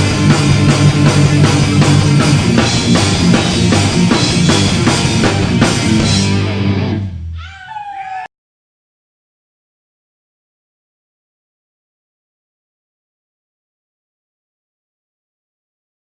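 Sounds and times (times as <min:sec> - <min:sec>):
rock band playing live: 0:00.0 - 0:07.3.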